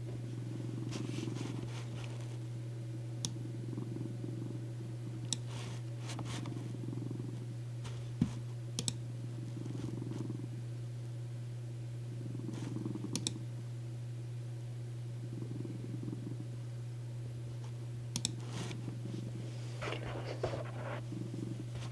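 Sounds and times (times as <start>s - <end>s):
low constant hum: 0.0s - 21.9s
cat purring: 0.1s - 2.5s, 3.3s - 7.5s, 9.4s - 10.6s, 12.2s - 13.2s, 15.3s - 16.5s, 18.4s - 21.9s.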